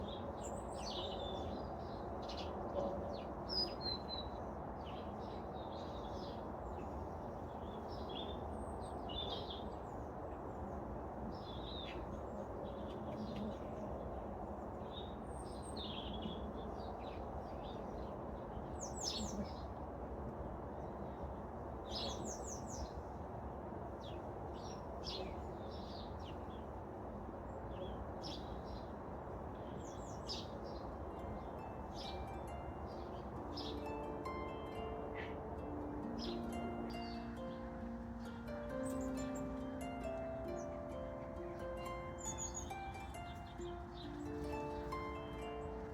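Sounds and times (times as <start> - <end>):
low background noise: 0.0 - 45.9
birds chirping and singing: 31.4 - 45.9.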